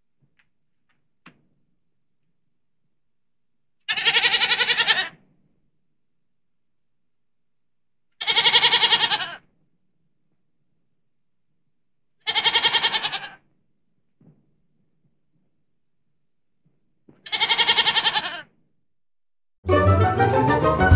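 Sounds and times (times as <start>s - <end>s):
goat bleating: 3.9s - 5.2s, 8.2s - 9.5s, 12.2s - 13.5s, 17.2s - 18.5s.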